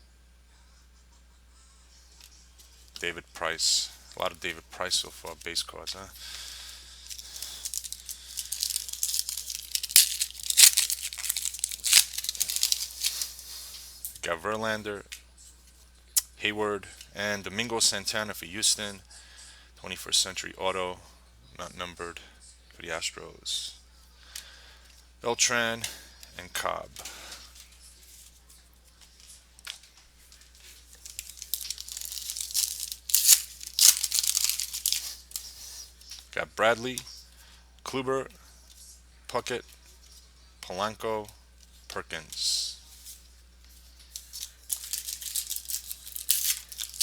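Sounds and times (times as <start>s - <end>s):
wrapper ripping: 6.2s - 13.5s, 30.3s - 35.8s, 44.1s - 47.0s
wrapper rustling and crackling: 6.2s - 14.2s, 27.0s - 36.2s, 42.9s - 47.0s.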